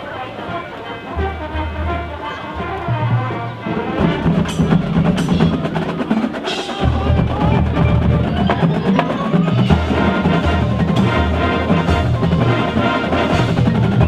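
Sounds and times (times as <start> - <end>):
marching band playing: 0.0 - 14.0
drum strokes: 0.4 - 14.0.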